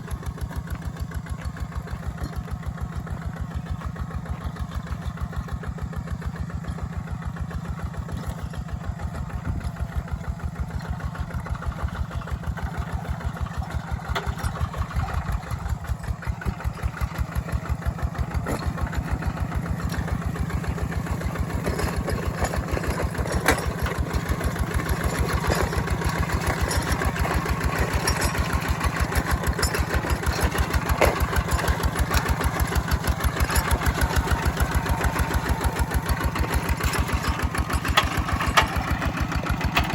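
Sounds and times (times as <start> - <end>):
tractor engine chugging: 0.0 - 39.9
metallic clanks: 21.1 - 39.9.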